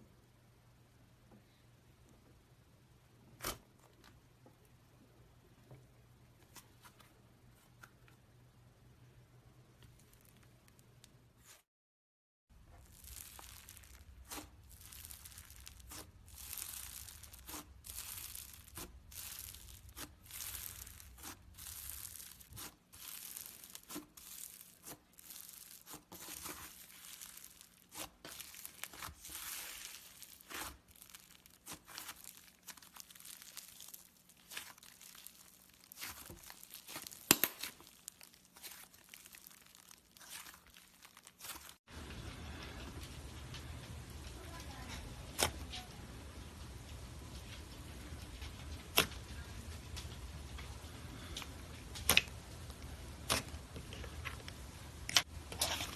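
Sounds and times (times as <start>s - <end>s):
slime crackling and tearing: 12.6s - 41.9s.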